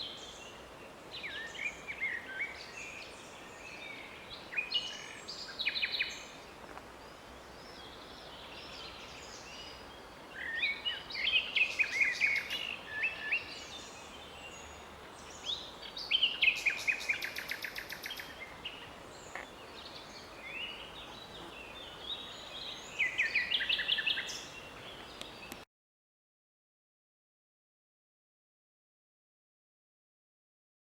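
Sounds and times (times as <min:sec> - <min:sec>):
nightingale singing: 0:07.6 - 0:25.6.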